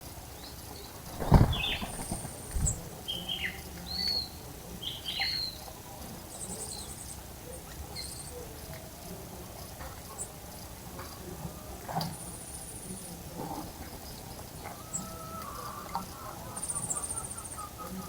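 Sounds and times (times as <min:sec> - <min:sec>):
low thumps: 0:01.1 - 0:02.9
birds whistling calls: 0:01.2 - 0:04.3, 0:14.1 - 0:18.0.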